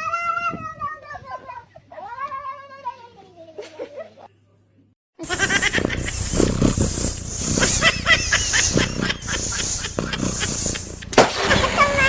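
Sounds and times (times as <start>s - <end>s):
animals chirping calls: 5.2s - 11.5s.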